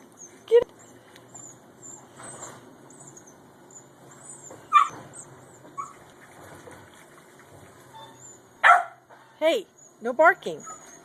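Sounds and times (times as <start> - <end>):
small dog yipping: 1.4 - 6.0, 7.9 - 9.5, 10.5 - 11.0.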